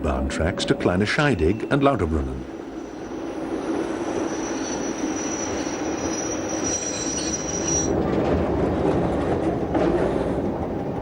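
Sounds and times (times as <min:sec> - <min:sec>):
train running gear rumbling: 0:00.5 - 0:11.0
train wheels squealing: 0:02.5 - 0:08.0.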